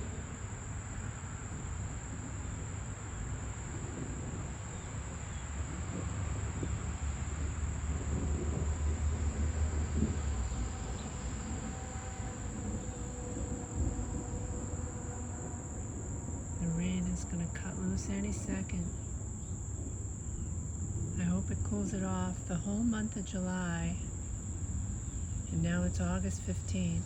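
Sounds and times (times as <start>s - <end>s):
crickets chirping: 0.0s - 27.0s
low rumble: 5.8s - 27.0s.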